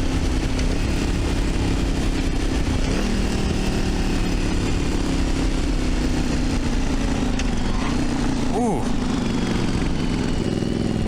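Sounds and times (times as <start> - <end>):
motorcycle engine running at low revs: 0.0 - 11.0.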